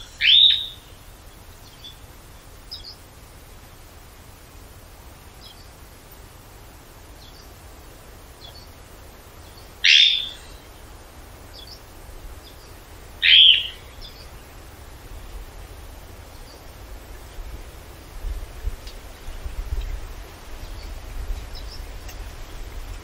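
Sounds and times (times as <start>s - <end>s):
loud bird calls: 0.0s - 3.1s, 7.1s - 18.2s.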